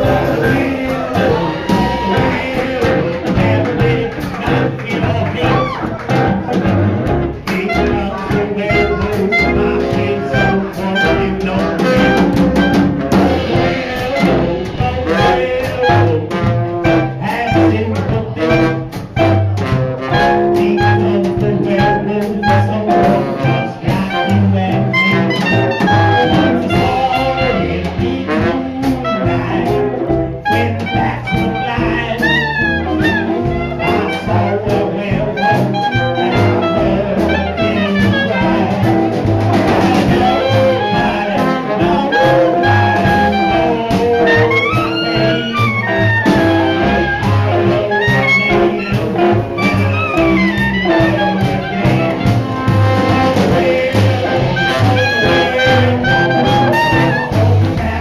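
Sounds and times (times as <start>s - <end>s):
drum kit beat: 0.0s - 58.0s
saxophone: 0.0s - 58.0s
swing jazz band playing: 0.0s - 58.0s
trumpet: 0.0s - 58.0s.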